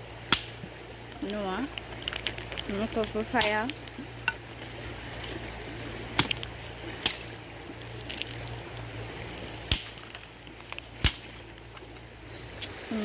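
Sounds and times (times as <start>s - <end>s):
wooden sticks snapping: 0.3s - 4.4s, 6.2s - 7.3s, 7.9s - 8.6s, 9.7s - 12.0s.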